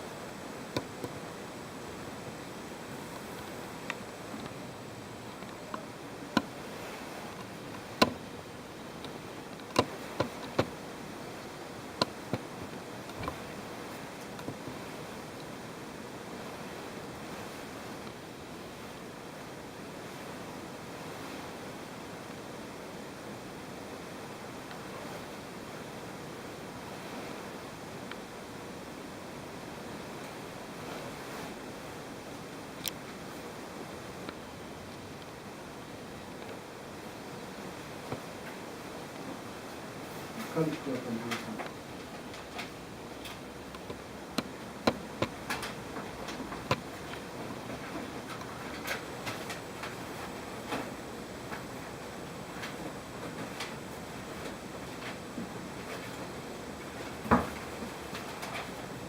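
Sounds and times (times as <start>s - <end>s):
steady low hiss: 0.0s - 59.0s
sharp clicks and knocks: 41.2s - 50.0s.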